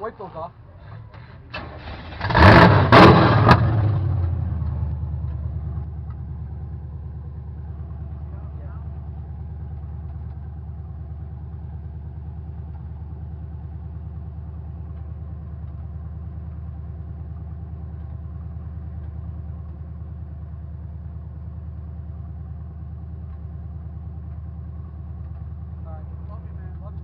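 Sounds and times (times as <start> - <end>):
truck engine idling: 0.0 - 2.6, 3.6 - 27.0.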